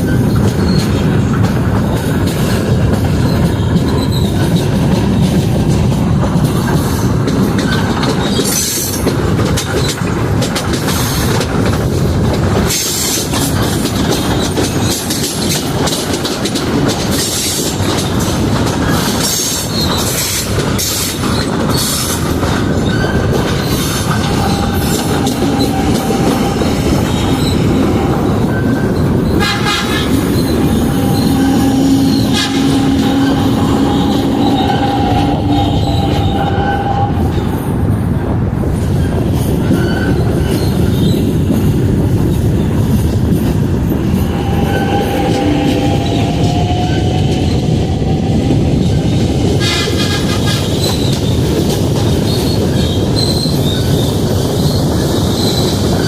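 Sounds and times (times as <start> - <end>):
train wheels squealing: 0.0 - 5.6, 6.5 - 10.0, 12.6 - 16.3, 17.0 - 37.6, 38.8 - 43.1, 44.1 - 56.0
wheels clicking over rails: 0.0 - 37.9
train rumbling: 0.0 - 56.0.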